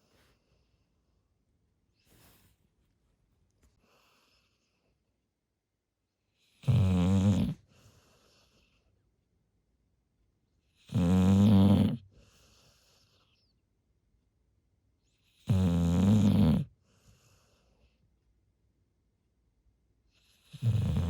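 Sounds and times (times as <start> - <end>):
dog snoring: 6.4 - 8.5, 10.8 - 13.1, 15.2 - 17.6, 20.2 - 21.0.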